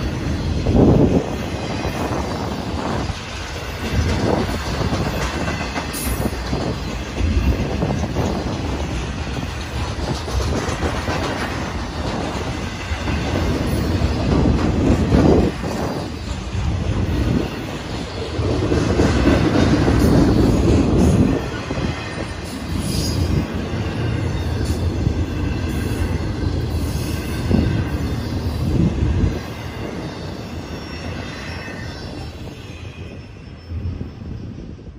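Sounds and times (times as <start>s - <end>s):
wheels clattering over rail joints: 0.0s - 30.3s
high wheel squeal: 12.1s - 34.9s.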